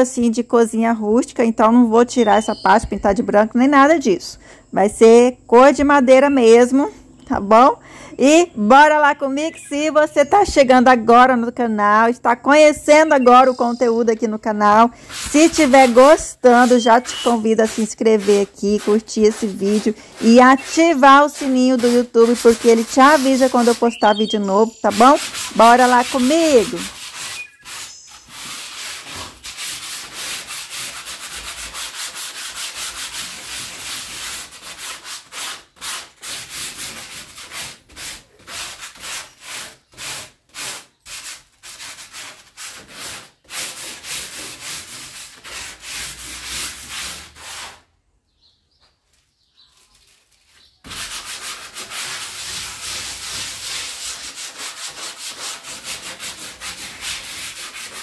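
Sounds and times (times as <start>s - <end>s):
sandpaper rubbing on wood: 14.7s - 47.9s, 49.7s - 58.0s.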